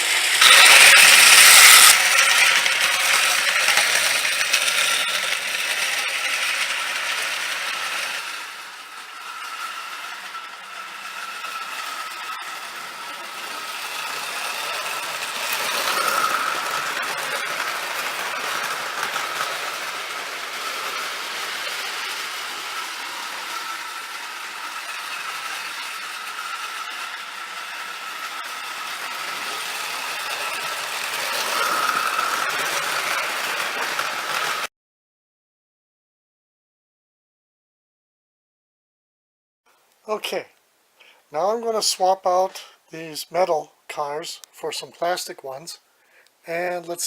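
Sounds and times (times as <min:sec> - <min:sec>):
electric motor whine: 0:00.0 - 0:34.7
toy train wheels rattling on rails: 0:00.0 - 0:34.7, 0:41.0 - 0:47.0.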